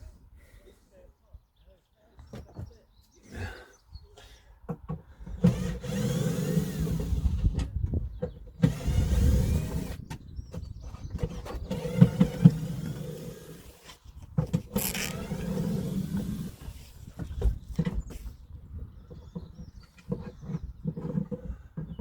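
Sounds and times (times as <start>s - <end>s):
power tool motor running: 11.7s - 13.8s, 14.8s - 16.8s.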